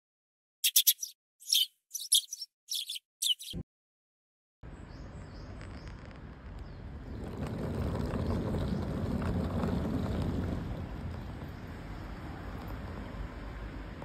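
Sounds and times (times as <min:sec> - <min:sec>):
birds chirping: 0:00.6 - 0:03.6
outdoor ambient rumble: 0:04.6 - 0:14.0.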